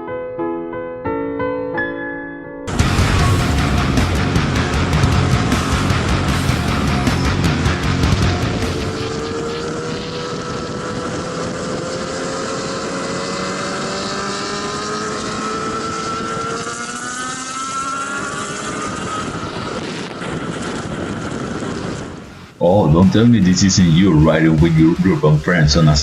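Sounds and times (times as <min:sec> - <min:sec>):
wind rushing: 0:02.7 - 0:12.2
motorcycle engine accelerating: 0:02.7 - 0:22.3.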